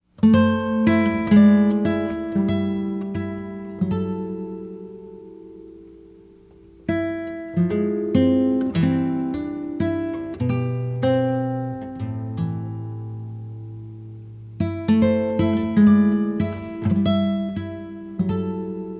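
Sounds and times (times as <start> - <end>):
acoustic guitar music: 0.0 - 18.9.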